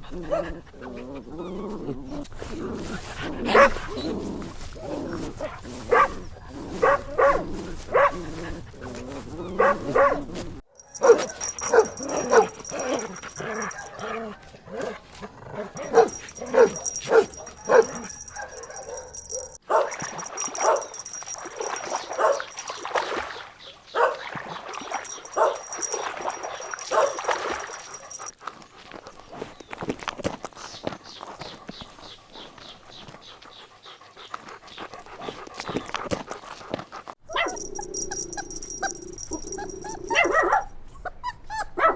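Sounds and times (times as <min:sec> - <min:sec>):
puppies yapping: 0:09.1 - 0:28.3, 0:37.0 - 0:41.9.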